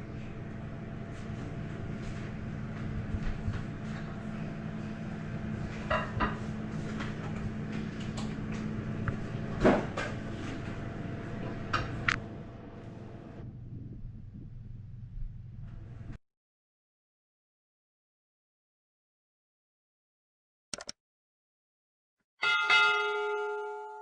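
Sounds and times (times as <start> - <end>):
steady low hum: 0.0 - 16.2.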